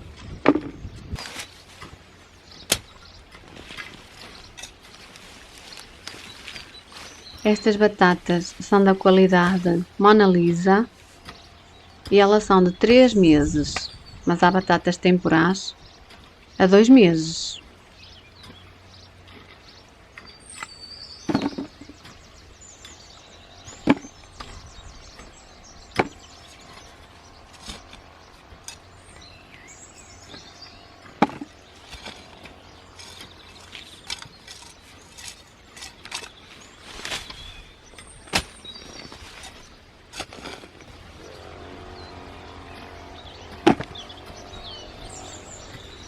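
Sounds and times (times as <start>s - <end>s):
knocks and thuds from digging: 0.2s - 2.0s, 20.6s - 22.2s, 23.7s - 24.6s, 25.9s - 26.8s, 31.0s - 36.3s, 38.0s - 41.0s, 43.4s - 44.4s.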